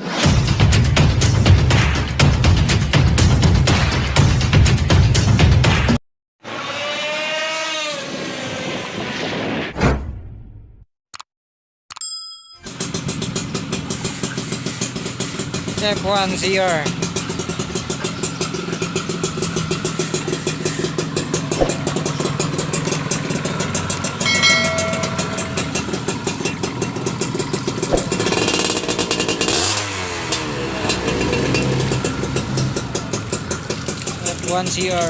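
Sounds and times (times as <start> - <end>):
two-stroke engine idling: 12.7 - 35.0.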